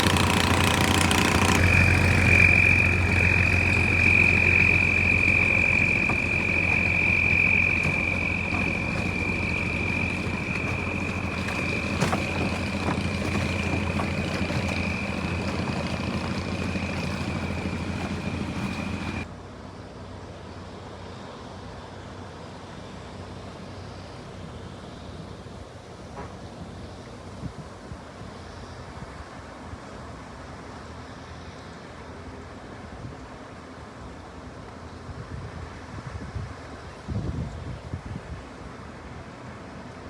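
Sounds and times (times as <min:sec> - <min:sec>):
engine running with high whine: 0:00.0 - 0:19.3
quiet rumble: 0:00.0 - 0:19.3.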